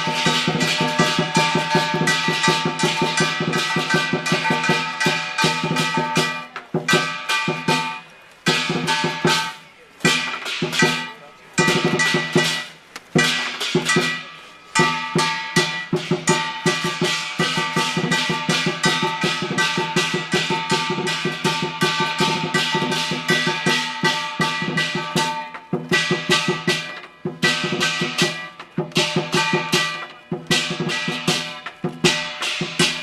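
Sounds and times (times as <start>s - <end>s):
ringing gong: 0.0s - 8.0s
clashing cymbals: 0.0s - 33.0s
drum beaten rapidly: 0.0s - 33.0s.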